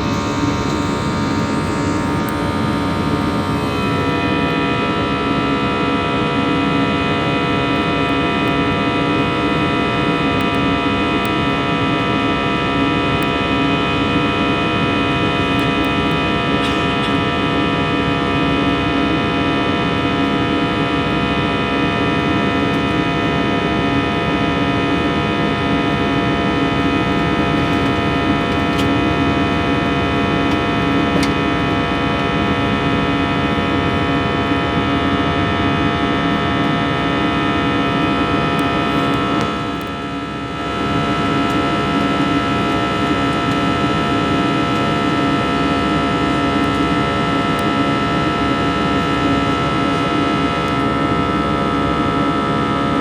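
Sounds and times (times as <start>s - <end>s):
jet engines droning in cabin: 0.0s - 53.0s.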